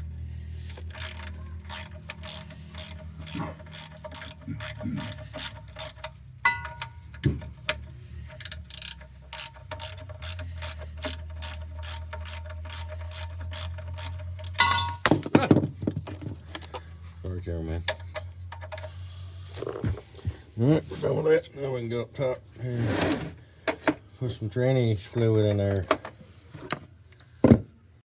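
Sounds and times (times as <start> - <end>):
hand ratchet clicking: 0.0 - 15.1
metallic knocks: 1.8 - 16.3.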